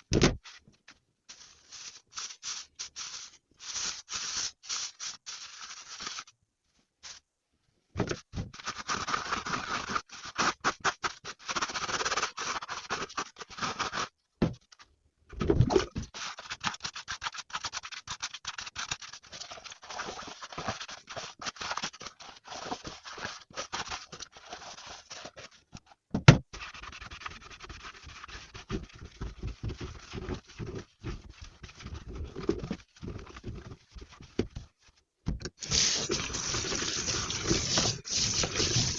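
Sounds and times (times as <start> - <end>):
scratchy scrubbing strokes: 35.7 - 38.9.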